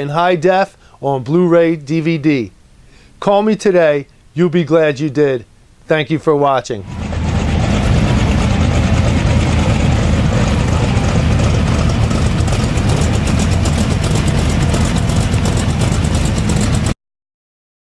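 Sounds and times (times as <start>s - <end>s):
car engine idling: 6.8s - 17.0s.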